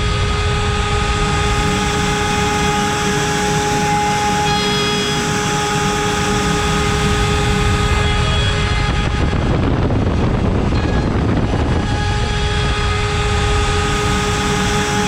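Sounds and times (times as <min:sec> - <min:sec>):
cutter milling wood: 0:00.0 - 0:09.5, 0:10.7 - 0:15.0
router spindle whine: 0:00.0 - 0:15.0.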